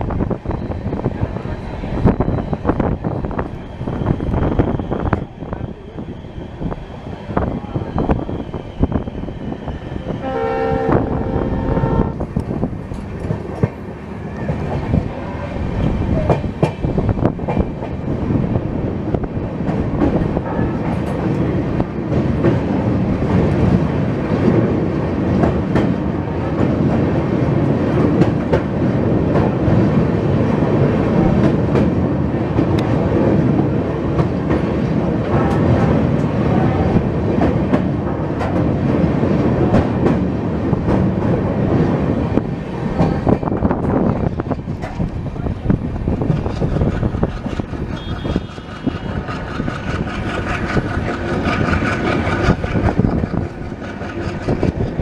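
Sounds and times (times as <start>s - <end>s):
train wheels rumbling over rails: 0.0s - 55.0s
train horn: 10.2s - 12.2s, 47.9s - 49.3s.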